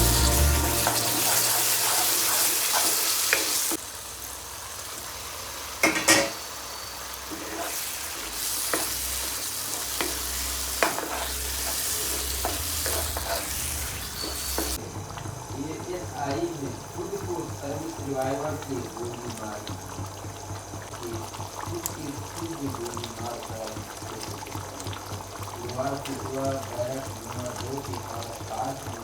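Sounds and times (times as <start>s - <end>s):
curry sizzling in a pan: 0.0s - 29.0s
spoon scraping a pan: 0.8s - 3.8s, 7.3s - 14.8s.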